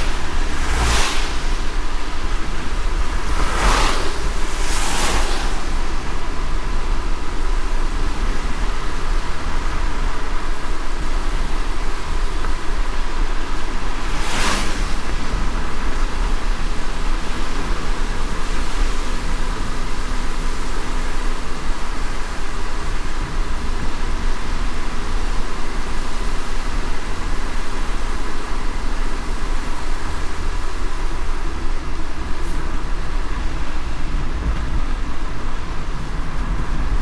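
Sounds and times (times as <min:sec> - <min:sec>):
brief swish: 0:00.0 - 0:01.7, 0:03.2 - 0:06.0
car road rumble: 0:00.0 - 0:37.0
tyre hiss on wet road: 0:00.0 - 0:37.0.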